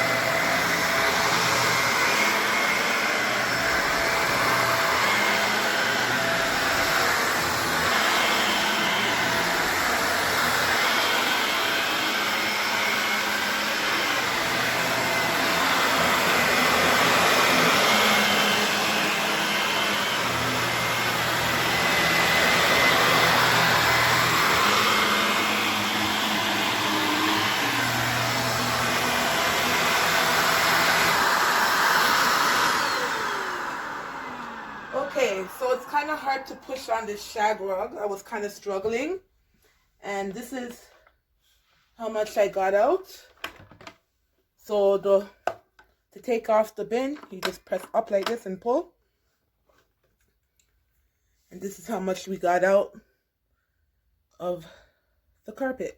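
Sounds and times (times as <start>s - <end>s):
vacuum cleaner on a rug: 0.0s - 39.2s, 40.1s - 43.7s, 44.7s - 45.6s.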